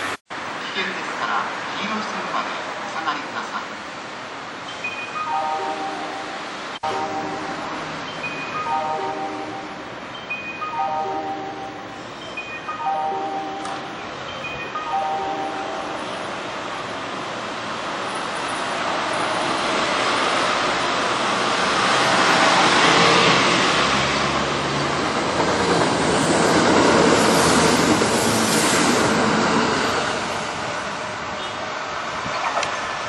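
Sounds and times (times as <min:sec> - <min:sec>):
electric train passing: 0:00.0 - 0:33.0
train wheels on rails: 0:13.5 - 0:32.3.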